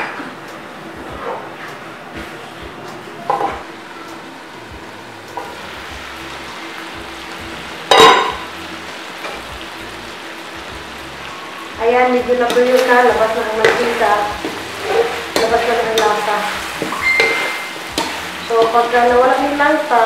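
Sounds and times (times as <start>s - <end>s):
chicken sizzling in a wok: 3.3s - 20.0s
ringing metal clang: 7.9s - 8.4s, 16.8s - 18.7s
spatula stirring: 12.4s - 19.9s.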